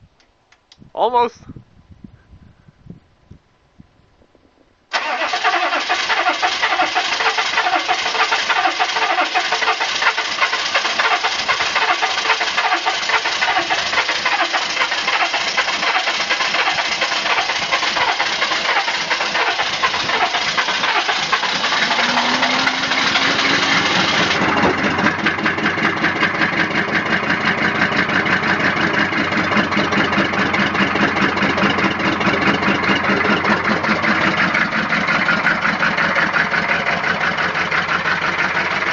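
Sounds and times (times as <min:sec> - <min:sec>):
engine hiss: 0:04.9 - 0:24.6
diesel engine clattering: 0:04.9 - 0:38.9.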